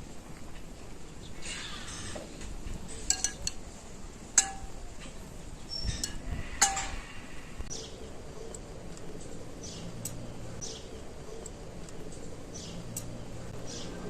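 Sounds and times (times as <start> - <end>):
dishes clinking: 2.9 - 3.6, 4.4 - 7.1.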